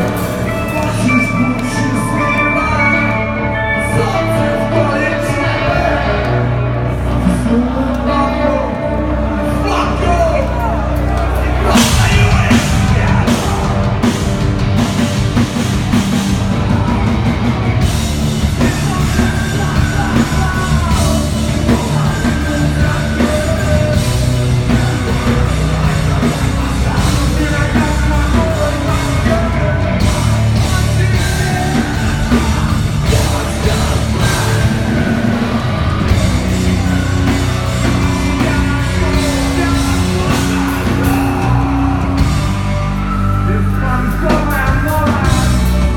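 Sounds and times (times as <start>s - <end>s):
person singing: 0.0s - 15.0s, 18.4s - 45.9s
drums: 0.0s - 45.9s
heavy rock band playing live: 0.0s - 45.9s.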